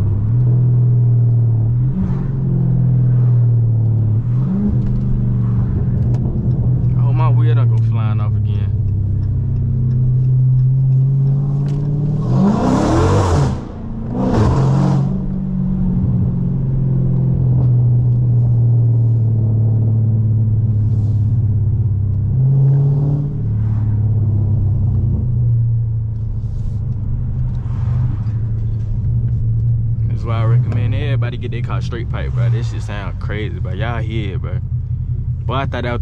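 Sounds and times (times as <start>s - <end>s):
car exhaust droning: 0.0s - 36.0s
engine revving hard: 12.2s - 15.2s.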